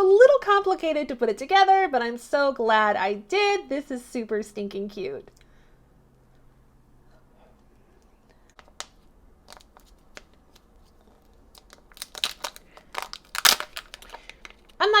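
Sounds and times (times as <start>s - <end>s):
wrapper crinkling and tearing: 8.6s - 14.8s.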